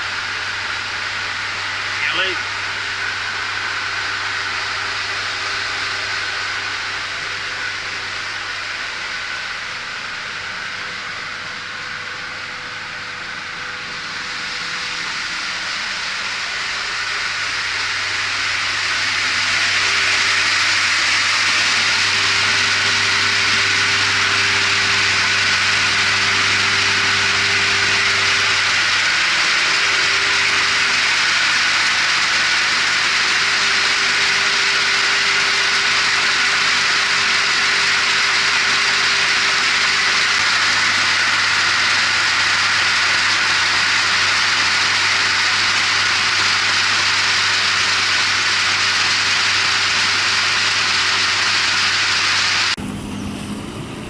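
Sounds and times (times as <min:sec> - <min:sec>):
boat engine humming: 0:01.7 - 0:32.7, 0:52.7 - 0:54.0.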